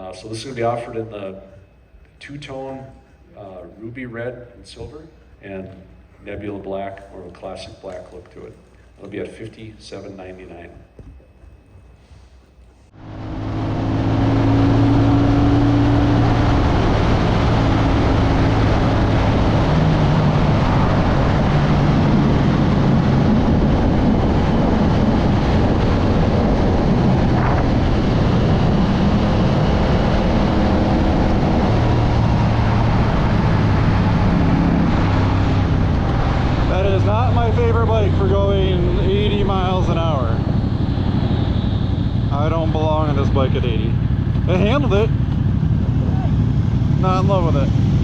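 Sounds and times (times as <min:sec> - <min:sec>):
motorcycle engine running: 0:12.9 - 0:48.0
wind rushing: 0:12.9 - 0:48.0.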